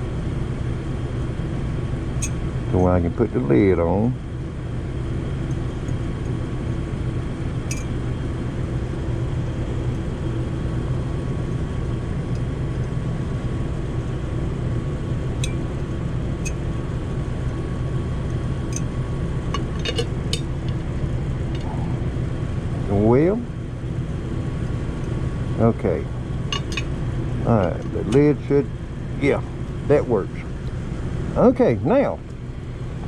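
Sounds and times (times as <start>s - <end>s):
low mechanical hum: 0.0s - 33.0s
container lid clinking: 26.6s - 26.8s.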